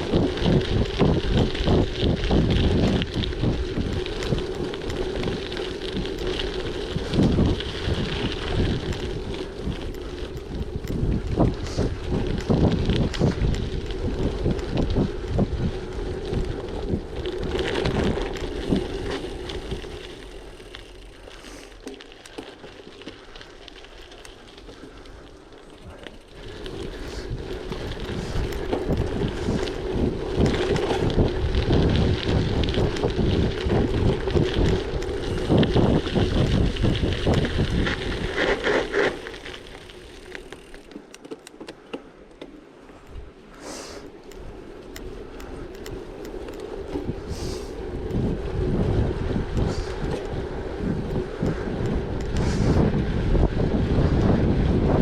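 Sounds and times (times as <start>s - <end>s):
wind buffeting microphone: 0.0s - 21.4s, 24.6s - 40.8s, 44.2s - 55.0s
tyres crunching on gravel: 0.0s - 41.4s
bike rattling: 0.0s - 55.0s.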